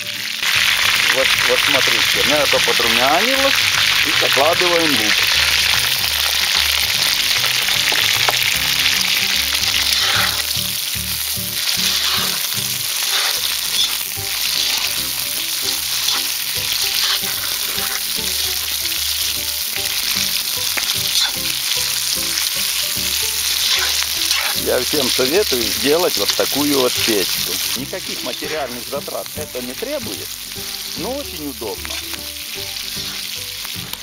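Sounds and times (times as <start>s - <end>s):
onions and meat sizzling in oil: 0.0s - 34.0s
metal spatula scraping: 8.9s - 28.8s, 31.8s - 33.4s.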